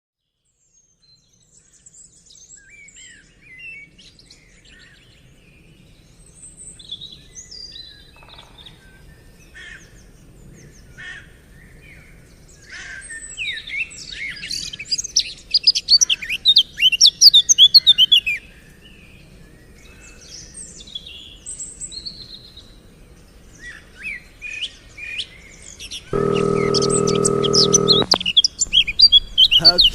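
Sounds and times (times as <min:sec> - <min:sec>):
small birds chirping: 0:25.6 - 0:29.9.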